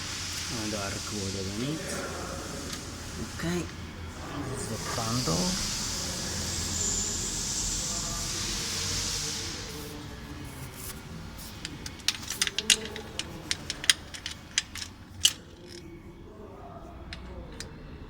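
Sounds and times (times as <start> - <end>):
metal tools clinking: 11.4 - 16.0.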